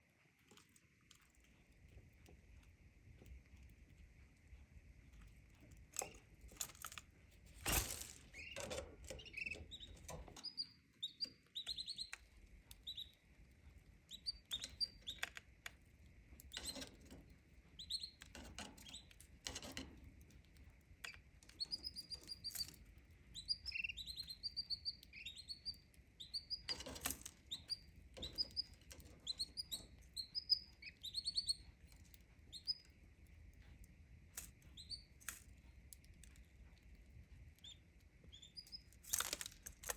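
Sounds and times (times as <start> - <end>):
wings rustling and fluttering: 5.9 - 12.2, 38.6 - 39.9
canary chirping: 8.2 - 39.9.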